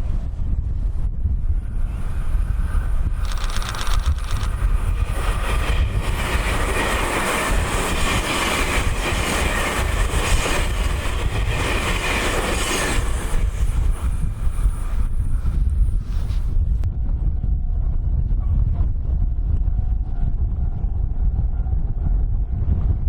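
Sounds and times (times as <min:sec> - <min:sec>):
wind buffeting microphone: 0:00.0 - 0:23.0
electric train running on rails: 0:00.9 - 0:17.2.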